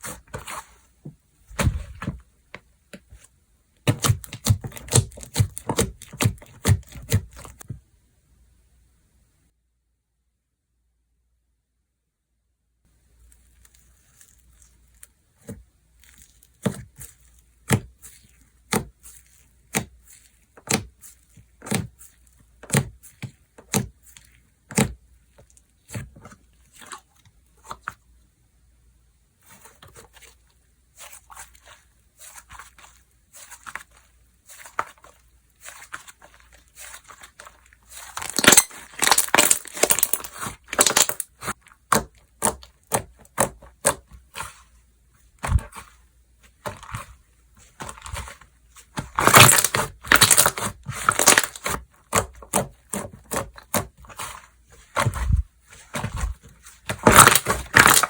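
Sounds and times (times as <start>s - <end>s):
slime crackling: 29.4s - 58.0s
slime popping: 34.5s - 44.6s, 47.8s - 58.0s.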